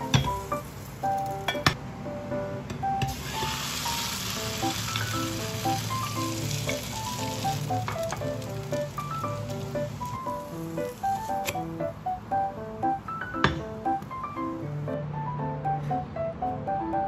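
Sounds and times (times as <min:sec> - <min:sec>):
pancake sizzling in oil: 0:00.0 - 0:01.4, 0:03.1 - 0:11.4.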